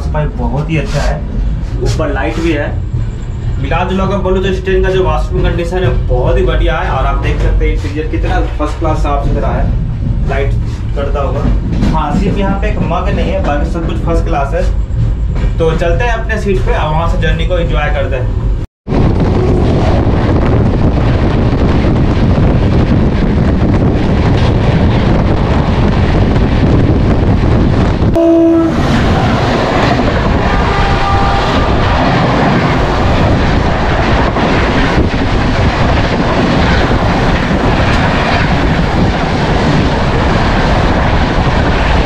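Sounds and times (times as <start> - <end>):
rush of train wheels and wind: 0.0 - 42.0
train horn note: 28.2 - 29.3, 30.4 - 31.8.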